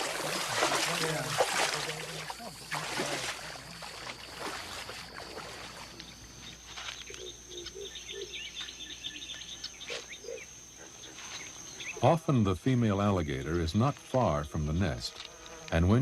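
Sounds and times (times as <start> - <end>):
water sloshing: 0.0 - 6.6
high insect drone: 0.0 - 16.0
bird chirps: 5.9 - 12.1.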